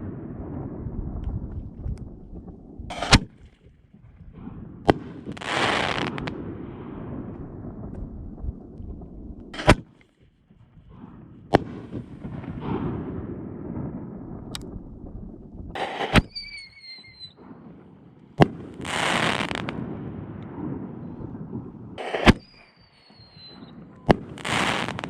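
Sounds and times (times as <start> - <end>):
low rumble: 0.0 - 5.4, 6.2 - 9.7, 10.6 - 16.3
fireworks booming: 0.0 - 25.0
firework hiss: 2.9 - 3.3, 5.4 - 6.3, 9.6 - 9.8, 15.8 - 17.4, 18.4 - 19.8, 22.0 - 23.4, 24.2 - 25.0.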